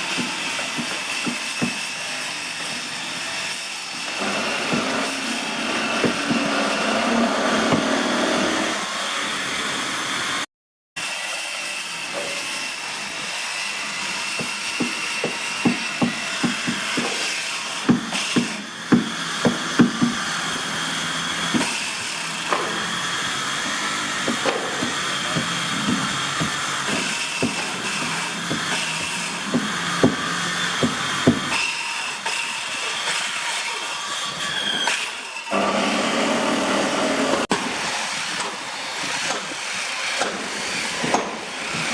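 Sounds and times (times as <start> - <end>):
hammering on wood: 0.1 - 1.9, 4.2 - 6.9, 14.2 - 20.3, 21.5 - 23.0, 23.6 - 31.6, 40.2 - 41.4.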